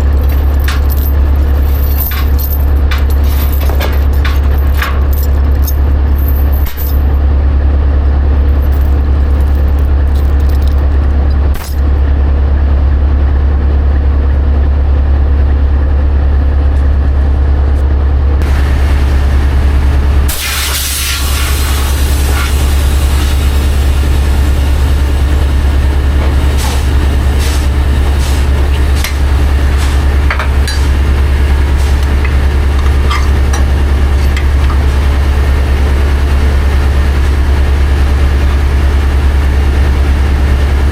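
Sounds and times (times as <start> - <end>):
diesel engine droning: 0.0 - 40.9
hissing air burst: 20.2 - 25.0.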